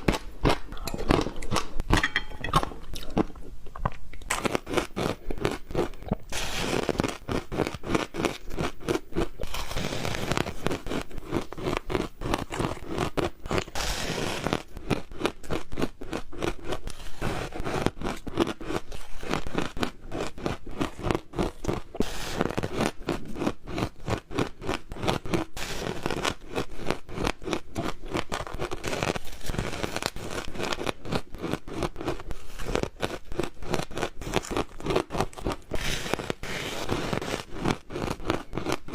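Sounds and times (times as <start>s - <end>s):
ice crunching in mouth: 0.0s - 38.9s.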